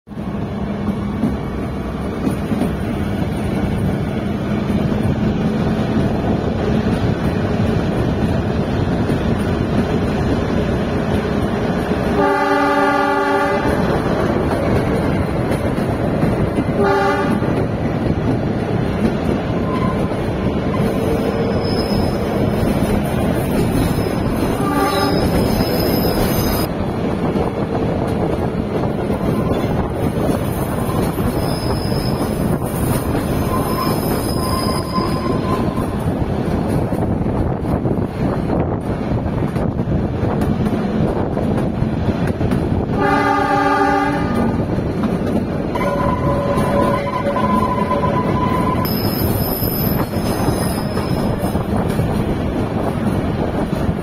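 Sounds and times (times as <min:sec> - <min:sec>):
train rolling rumble: 0:00.1 - 0:54.0
train horn: 0:12.2 - 0:13.9, 0:16.8 - 0:17.5, 0:24.6 - 0:25.8, 0:43.0 - 0:44.6, 0:45.7 - 0:50.0
faint high squeals: 0:21.1 - 0:22.4, 0:30.8 - 0:32.3, 0:33.4 - 0:35.9.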